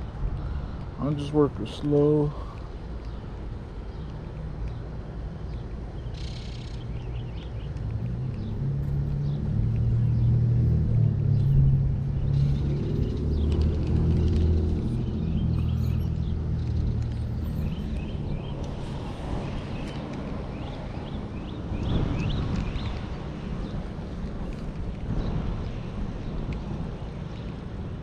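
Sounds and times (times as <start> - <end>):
vehicle passing rumble: 5.6 - 28.0.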